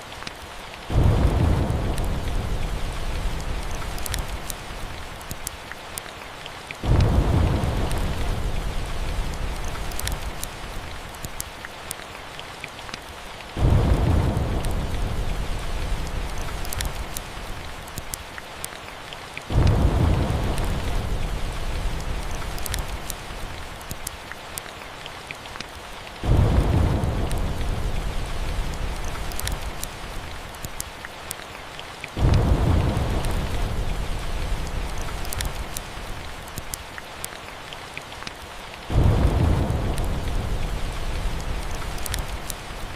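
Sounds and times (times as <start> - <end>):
log fire crackling: 0.0 - 42.9
steady rain: 0.0 - 42.9
rolls of thunder: 0.9 - 3.8, 13.6 - 16.8, 19.5 - 22.4, 26.2 - 29.1, 32.2 - 35.4, 38.9 - 42.3.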